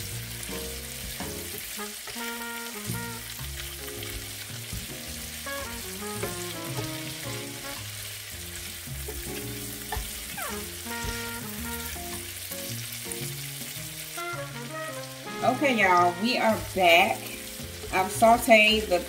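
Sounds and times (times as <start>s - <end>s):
background music: 0.0s - 19.0s
vegetables sizzling in a pan: 0.0s - 19.0s
spatula stirring: 5.4s - 12.9s.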